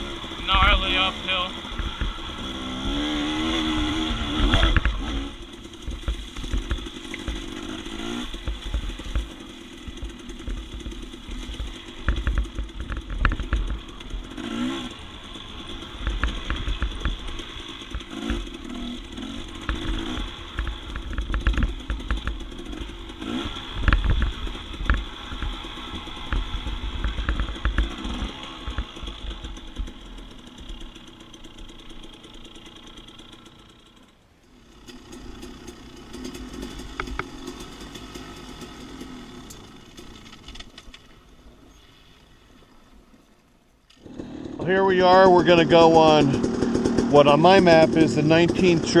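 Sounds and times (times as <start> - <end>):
dirt bike engine revving: 0.0 - 40.8, 43.9 - 49.0
sharp clicks and clatter: 4.3 - 15.0, 15.6 - 34.1, 34.8 - 41.1.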